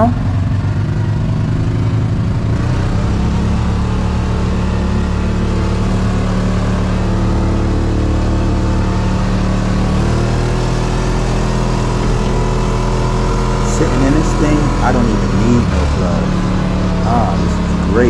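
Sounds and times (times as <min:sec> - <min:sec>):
utility vehicle engine running: 0:00.0 - 0:18.0.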